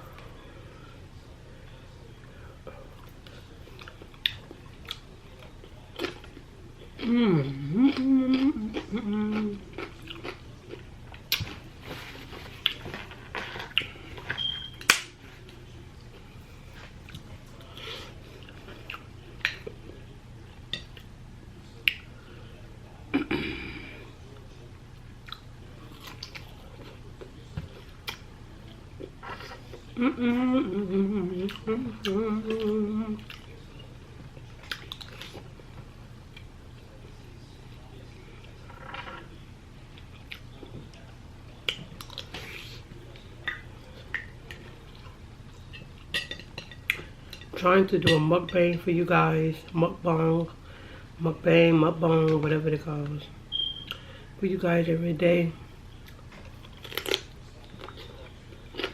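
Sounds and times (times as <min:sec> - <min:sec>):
steady low hum: 0:00.0 - 0:58.9
person chewing food: 0:02.9 - 0:20.0, 0:31.4 - 0:37.2, 0:39.9 - 0:47.6, 0:56.0 - 0:58.9
chewing with wet mouth smacks: 0:07.9 - 0:11.7, 0:34.6 - 0:35.5.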